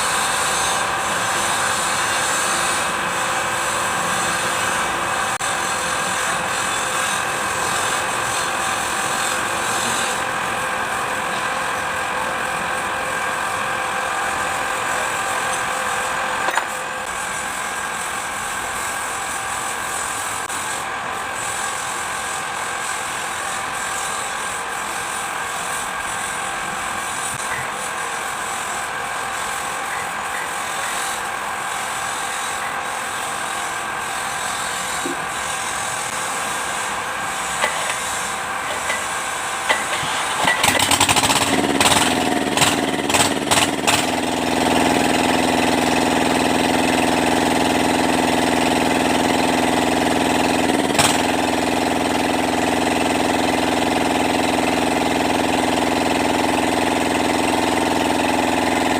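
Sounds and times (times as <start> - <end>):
diesel engine starting and idling: 39.9 - 58.9.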